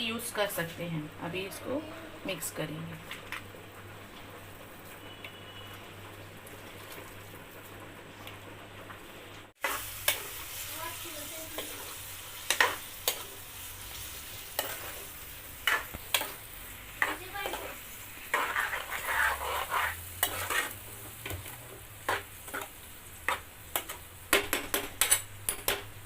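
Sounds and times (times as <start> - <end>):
mixture stirred in a bowl: 17.0 - 25.7.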